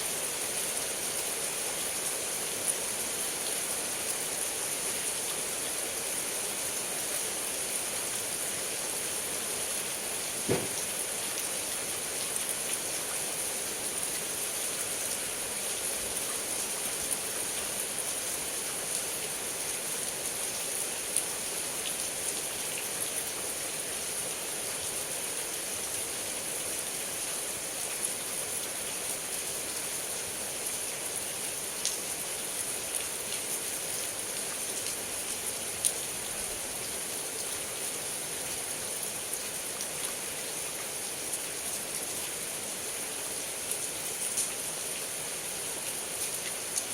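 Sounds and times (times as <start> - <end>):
heavy rain falling: 0.1 - 23.5.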